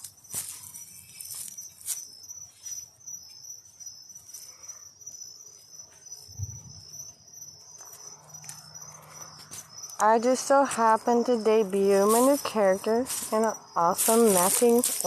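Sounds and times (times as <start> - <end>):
crickets chirping: 0.0 - 15.0
soft low thump: 6.3 - 6.9.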